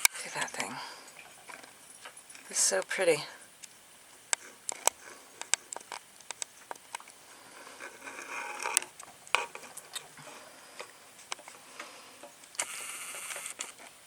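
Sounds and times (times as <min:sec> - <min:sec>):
scratchy scraping: 0:07.4 - 0:10.6.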